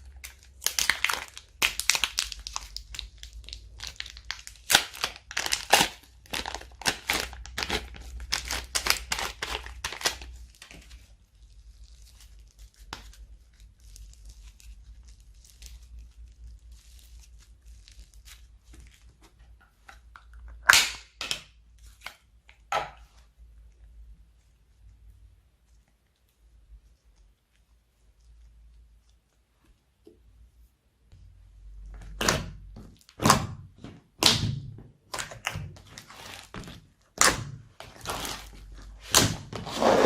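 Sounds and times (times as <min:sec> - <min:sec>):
slime squishing and crackling: 0:00.0 - 0:22.5, 0:31.7 - 0:39.9.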